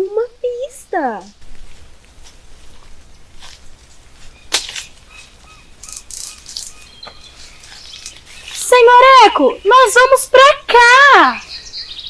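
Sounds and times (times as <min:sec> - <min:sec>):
sharp crack: 0:04.5 - 0:05.0, 0:05.8 - 0:07.2.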